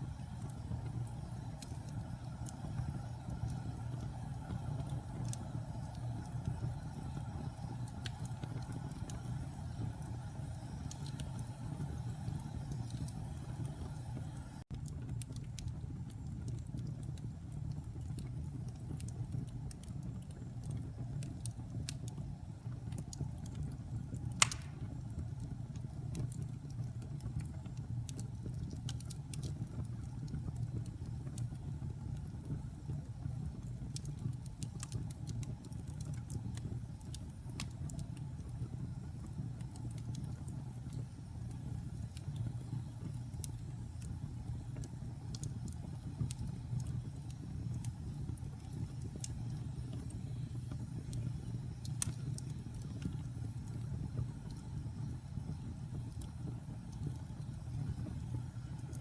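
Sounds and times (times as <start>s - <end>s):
fire crackling: 0.0s - 59.0s
low rumble of flame: 0.0s - 59.0s
loud fire pop: 24.4s - 25.0s.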